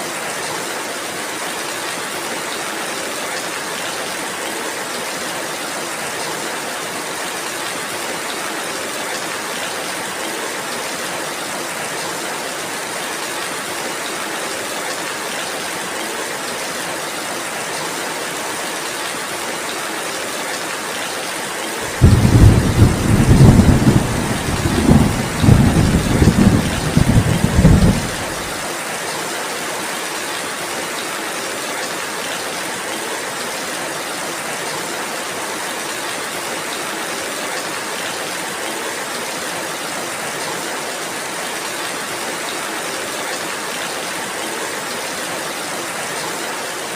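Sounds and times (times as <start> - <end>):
steady rainfall: 0.0 - 46.9
thunder rumbling: 21.9 - 28.6.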